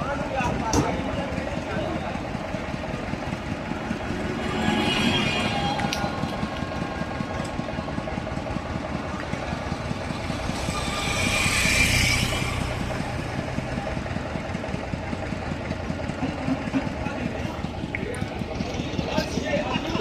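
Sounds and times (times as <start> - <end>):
vehicle engine running: 0.0 - 20.0
hissy swell: 3.2 - 8.0, 9.2 - 14.5.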